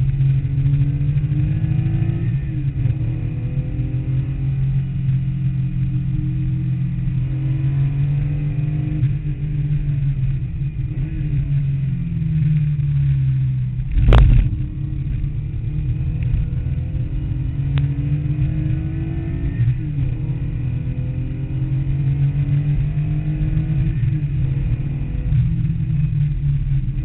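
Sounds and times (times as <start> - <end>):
car engine accelerating: 0.0 - 27.0
loud thump: 13.9 - 14.6.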